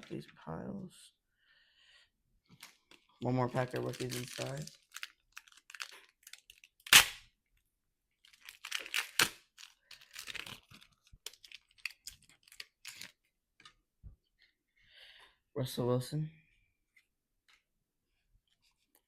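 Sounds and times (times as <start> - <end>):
wrapper tearing and crinkling: 3.6 - 7.2, 8.2 - 13.2.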